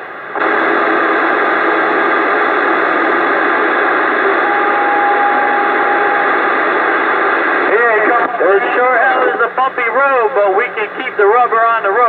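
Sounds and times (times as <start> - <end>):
radio static: 0.0 - 12.0
steady radio whistle: 0.4 - 9.9.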